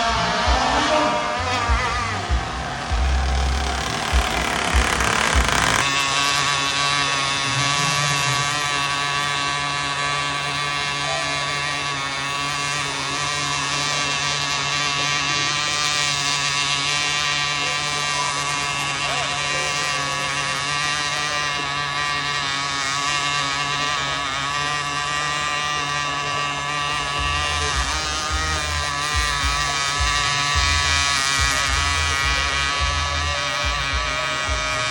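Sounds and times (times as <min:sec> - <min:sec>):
low thumps: 0:00.0 - 0:06.0
small engine high buzz: 0:00.0 - 0:34.9.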